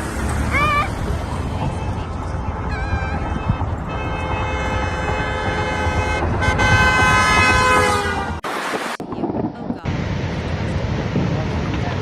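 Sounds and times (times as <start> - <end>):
vehicle horn blast: 3.1 - 8.4.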